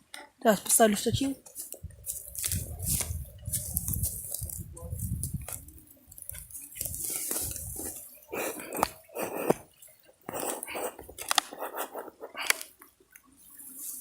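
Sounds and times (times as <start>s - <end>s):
camera handling rustling: 1.4s - 9.7s, 10.6s - 11.6s.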